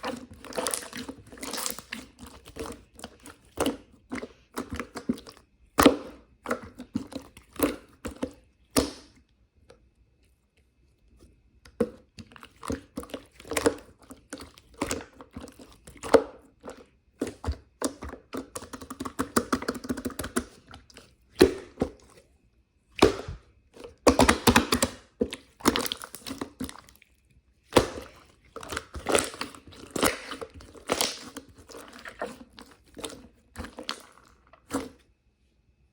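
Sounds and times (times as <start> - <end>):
crunching and crinkling: 0.0 - 6.0, 23.0 - 35.1.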